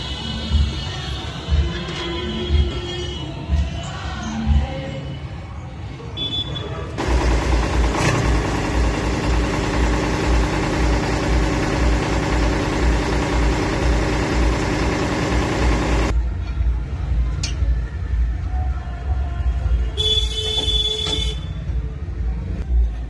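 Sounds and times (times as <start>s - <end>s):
tractor diesel engine idling: 7.0s - 16.1s.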